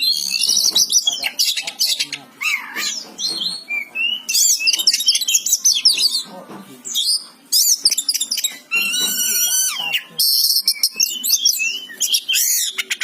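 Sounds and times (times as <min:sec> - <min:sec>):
bird singing: 0:00.0 - 0:13.0.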